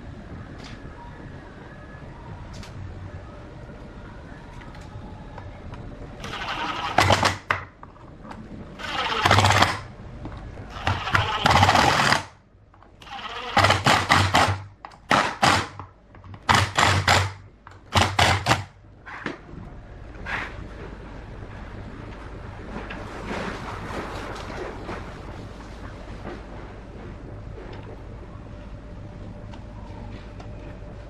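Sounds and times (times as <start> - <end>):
low hum: 0.0 - 31.0
workshop machine working material: 4.4 - 31.0.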